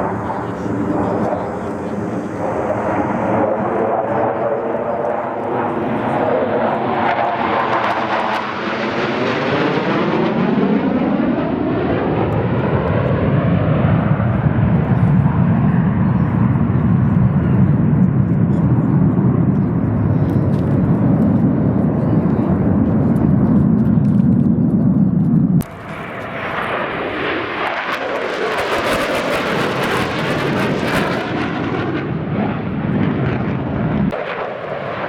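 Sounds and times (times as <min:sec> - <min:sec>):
aircraft engine flying past: 0:00.0 - 0:35.0.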